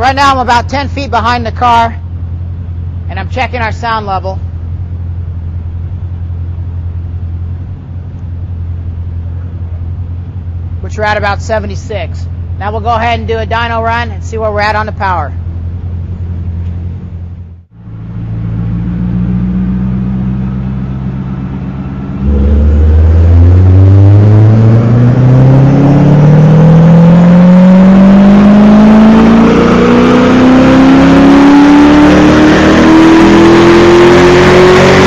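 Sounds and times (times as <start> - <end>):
car engine revving on dyno: 17.8 - 35.0.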